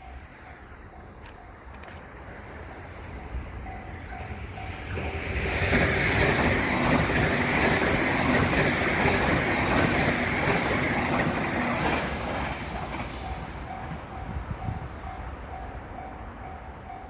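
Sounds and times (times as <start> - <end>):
level crossing warning bell: 0.0 - 2.3, 3.0 - 5.9, 12.8 - 17.0
train passing: 0.0 - 17.0.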